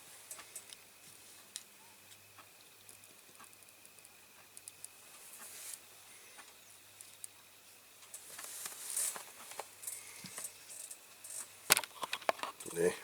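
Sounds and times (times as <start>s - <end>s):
scratchy rustles: 8.2s - 9.7s.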